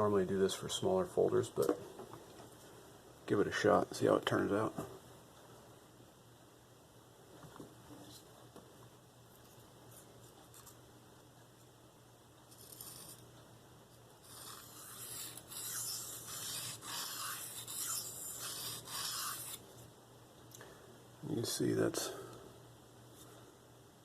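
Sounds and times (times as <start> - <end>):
knife blade scraping sharpening stone: 14.3 - 19.6.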